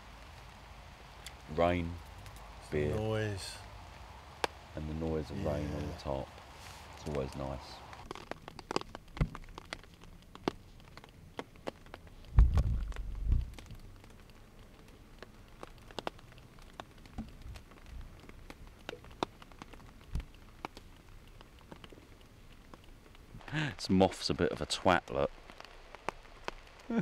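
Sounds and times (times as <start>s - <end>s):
raindrops tapping on a tarp: 0.0s - 27.0s
low thump: 12.3s - 13.5s.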